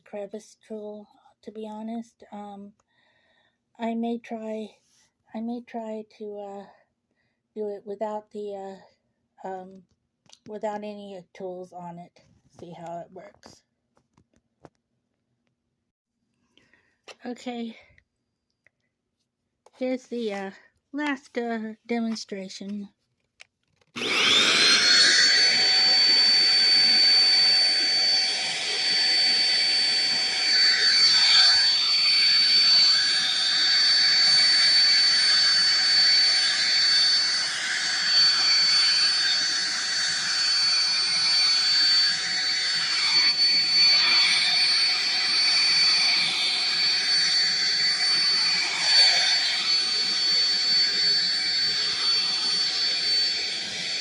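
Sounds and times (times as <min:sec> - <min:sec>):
vacuum motor whine: 0:24.0 - 0:54.0.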